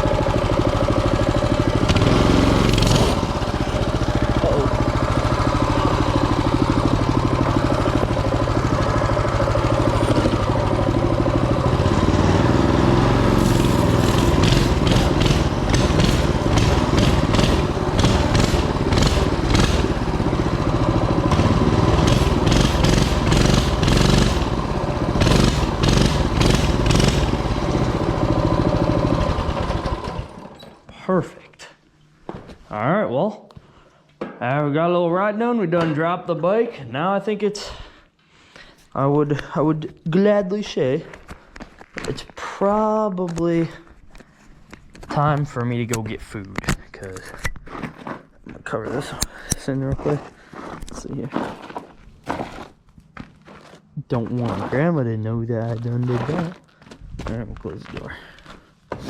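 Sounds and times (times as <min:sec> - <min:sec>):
mini bike engine running: 0:00.0 - 0:30.7.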